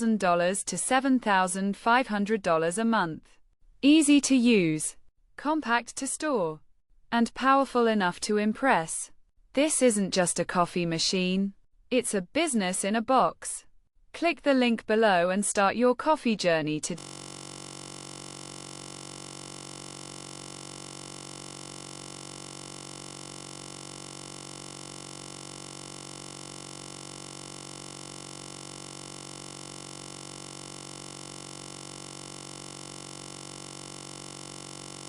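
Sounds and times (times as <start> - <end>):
electronic hum: 17.0 - 35.0.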